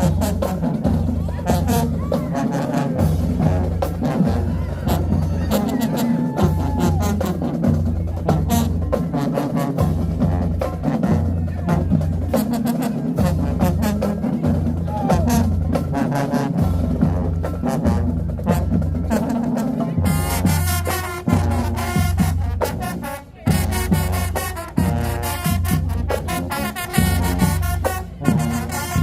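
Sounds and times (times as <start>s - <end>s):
drumline pounding: 0.0s - 29.0s
marching band playing: 0.0s - 29.0s
bright brass passage: 20.2s - 29.0s.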